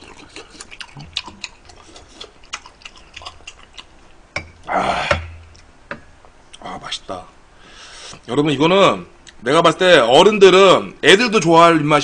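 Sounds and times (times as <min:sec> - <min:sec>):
mouth chewing and smacking: 0:00.0 - 0:04.2
loud breathy rush: 0:07.5 - 0:08.2.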